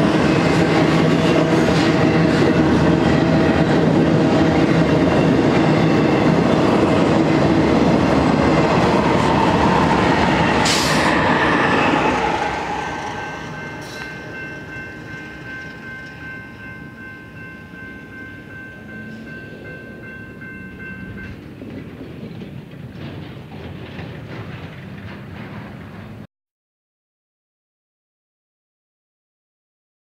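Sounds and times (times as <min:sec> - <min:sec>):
train rumble and wheel clatter: 0:00.0 - 0:26.3
steady high tones: 0:08.5 - 0:21.4.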